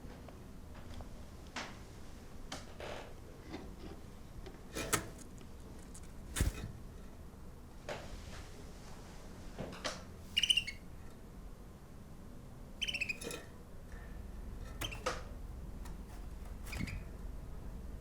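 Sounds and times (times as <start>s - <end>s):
bird chirping: 10.4s - 10.8s, 12.8s - 13.3s.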